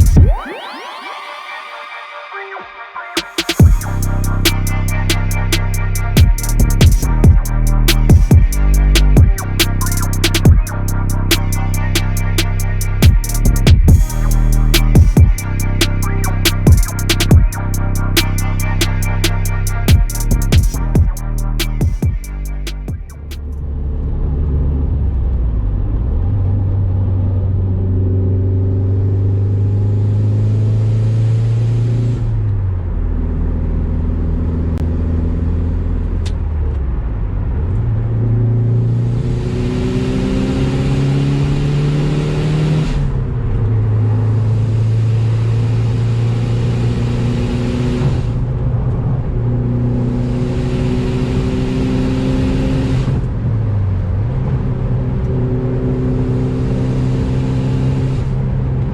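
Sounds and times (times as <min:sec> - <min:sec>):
car engine while driving: 0:23.1 - 0:58.9.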